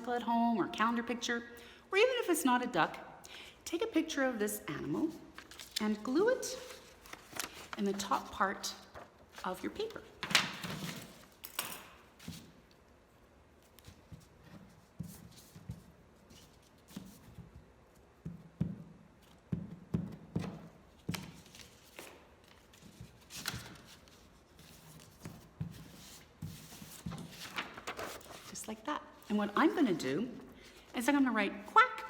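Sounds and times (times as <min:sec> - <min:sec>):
paper rustling: 0:04.9 - 0:11.4, 0:21.0 - 0:29.8.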